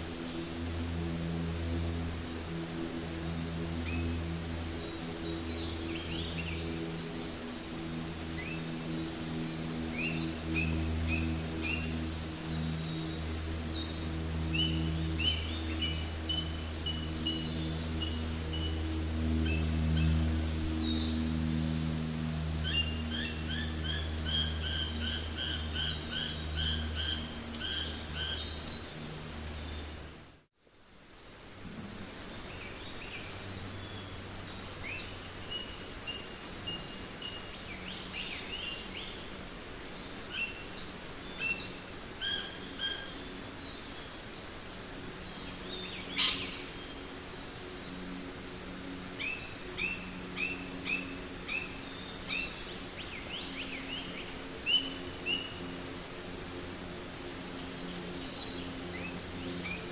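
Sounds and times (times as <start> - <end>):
low steady hum: 0.0 - 59.9
steady background hiss: 0.0 - 59.9
birds chirping and calling: 13.0 - 18.8, 45.1 - 46.9, 48.1 - 56.1.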